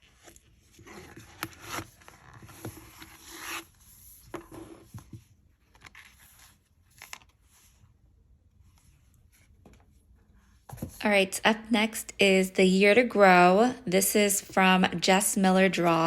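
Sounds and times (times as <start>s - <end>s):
paper pages rustling: 0.0s - 8.0s.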